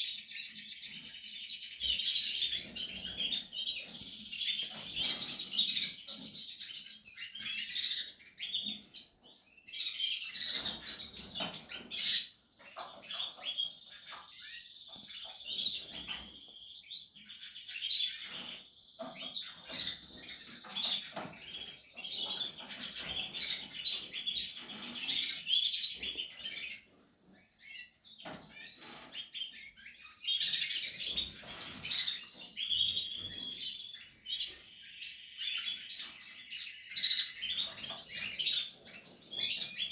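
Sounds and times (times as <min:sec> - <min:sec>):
canaries chirping and trilling: 0:00.0 - 0:39.9.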